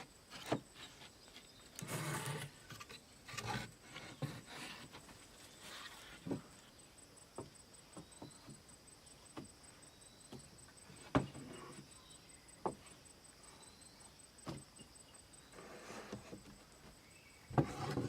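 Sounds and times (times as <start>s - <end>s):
wooden knocks and taps: 12.6s - 12.8s, 17.5s - 18.0s.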